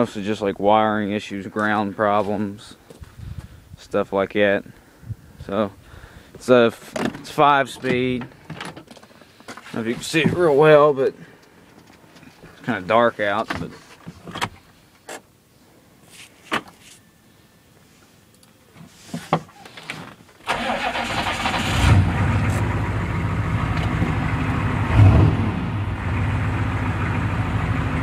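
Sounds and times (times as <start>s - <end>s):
diesel truck engine idling: 20.6s - 25.0s, 25.6s - 28.0s.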